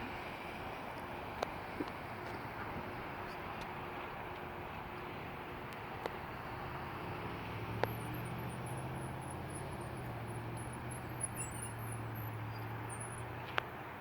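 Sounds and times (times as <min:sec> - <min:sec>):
faint high chirping: 0:10.7 - 0:13.3.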